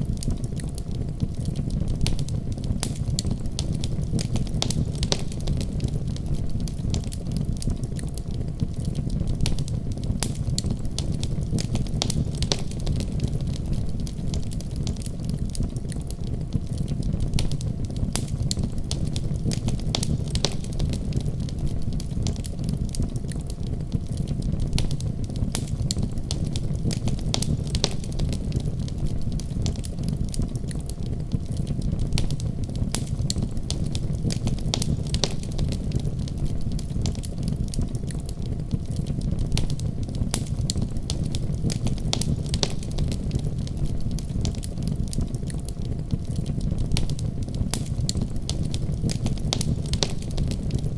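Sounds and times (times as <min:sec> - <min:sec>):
low rumble of flame: 0:00.0 - 0:50.9
wood fire crackling: 0:00.0 - 0:50.9.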